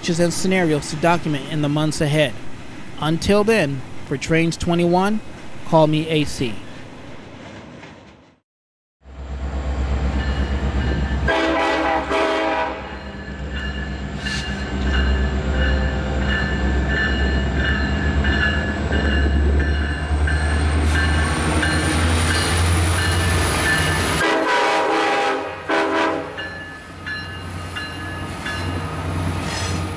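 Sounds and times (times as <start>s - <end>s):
diesel locomotive engine rumble: 9.0s - 29.9s
locomotive horn: 11.2s - 13.0s, 24.2s - 26.5s.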